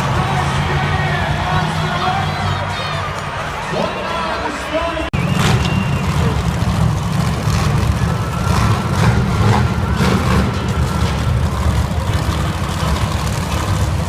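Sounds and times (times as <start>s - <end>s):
truck engine deep rumble: 0.0s - 14.0s.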